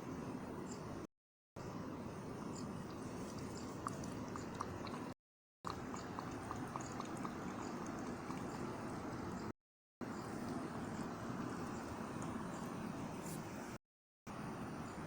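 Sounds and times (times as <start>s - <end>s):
cat lapping milk: 2.8s - 9.4s.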